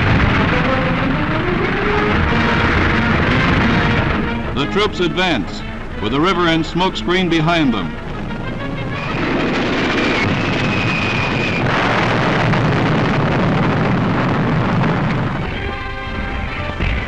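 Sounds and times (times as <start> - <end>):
loud rumbling roar: 0.0 - 4.6.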